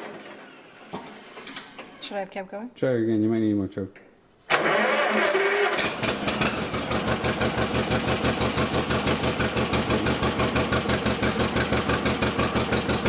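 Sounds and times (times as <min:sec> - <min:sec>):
tractor engine idling: 0:04.7 - 0:13.0.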